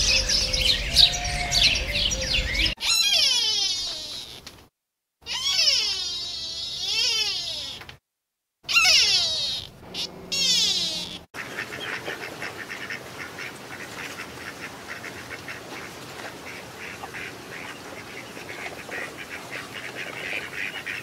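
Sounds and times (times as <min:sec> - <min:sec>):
ducks chirping: 0:00.0 - 0:02.8.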